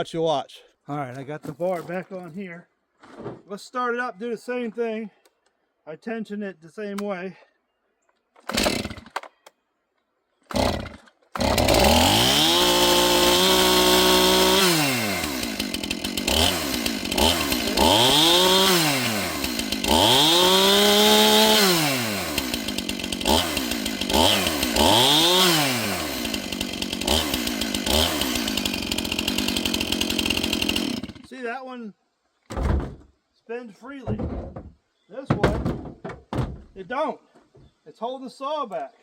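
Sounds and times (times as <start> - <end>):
chainsaw pull-start: 8.4 - 9.4, 10.4 - 31.3
chainsaw engine revving: 8.5 - 9.2, 10.5 - 31.3.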